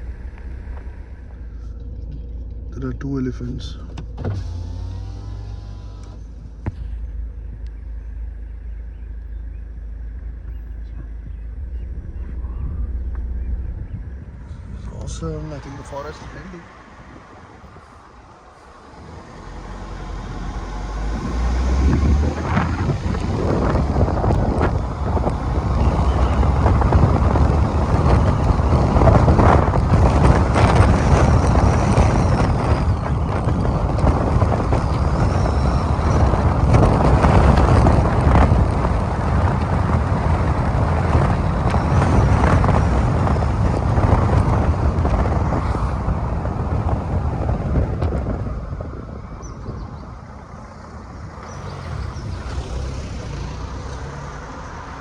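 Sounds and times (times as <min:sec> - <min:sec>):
car engine: 0:00.0 - 0:55.0
wind noise: 0:00.0 - 0:55.0
tyre noise: 0:10.2 - 0:48.4.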